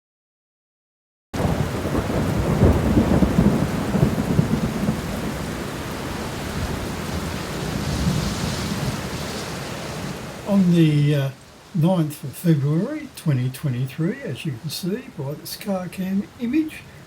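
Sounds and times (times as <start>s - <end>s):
thunder rumble: 1.4s - 10.8s
heavy rain: 1.4s - 17.0s.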